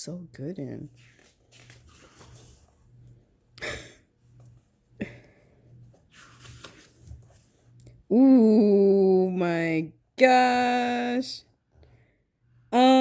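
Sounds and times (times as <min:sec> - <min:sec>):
paper pages rustling: 0:00.8 - 0:03.2, 0:05.7 - 0:07.8.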